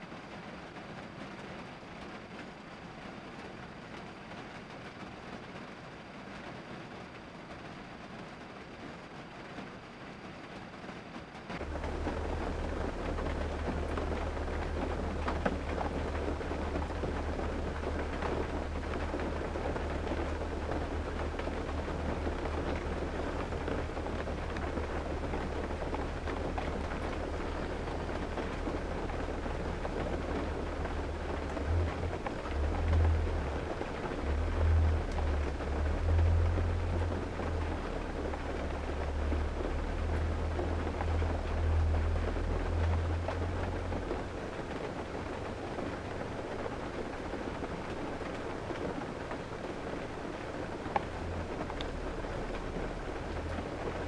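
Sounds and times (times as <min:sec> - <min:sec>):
rain pattering on a car: 0:00.0 - 0:54.0
deep low rumble: 0:11.6 - 0:49.1, 0:50.0 - 0:54.0.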